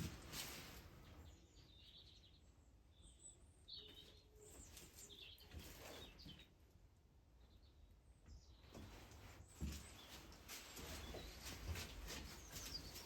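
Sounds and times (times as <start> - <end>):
faint small bird chirps: 1.0 - 6.6.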